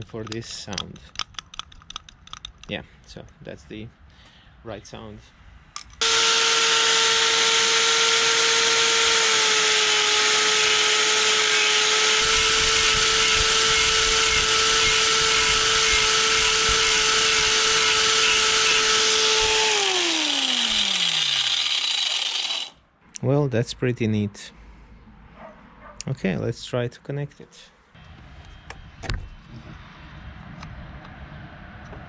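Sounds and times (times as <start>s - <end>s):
rotary tool grinding plastic: 6.0s - 22.8s
rotary tool whine spinning down: 6.0s - 22.8s.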